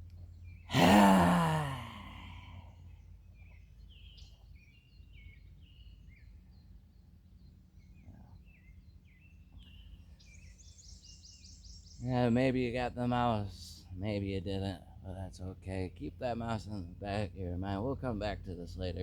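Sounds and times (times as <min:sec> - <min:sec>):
birds chirping: 0:00.0 - 0:19.0
low outdoor rumble: 0:12.0 - 0:19.0.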